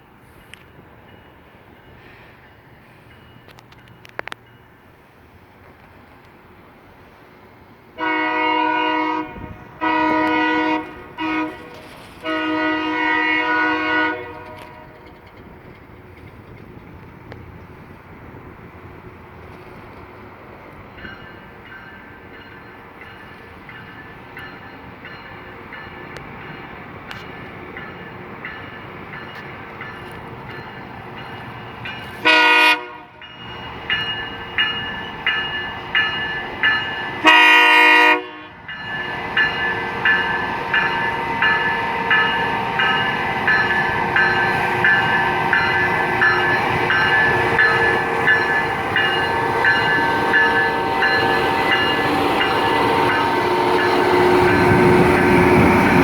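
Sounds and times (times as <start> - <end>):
train rumble: 0.0 - 56.0
locomotive air horn blasts: 8.0 - 15.0, 32.2 - 33.2, 37.2 - 38.7, 46.4 - 55.8
locomotive bell ringing: 21.0 - 56.0.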